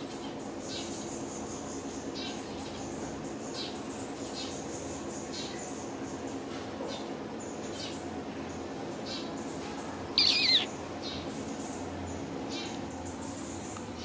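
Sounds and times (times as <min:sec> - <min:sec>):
low background hum: 0:00.0 - 0:14.0
small birds chirping: 0:00.0 - 0:14.0
bird warbling call: 0:10.2 - 0:10.7.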